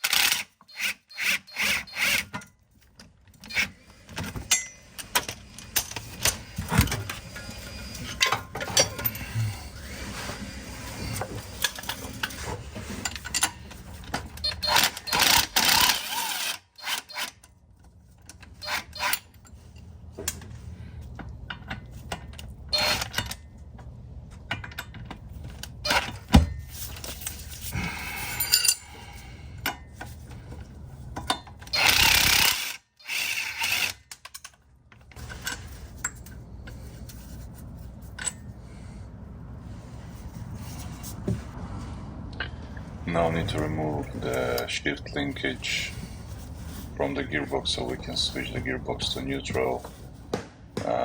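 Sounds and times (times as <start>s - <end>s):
tools scraping metal: 3.4s - 17.5s, 18.2s - 20.4s, 25.8s - 30.4s.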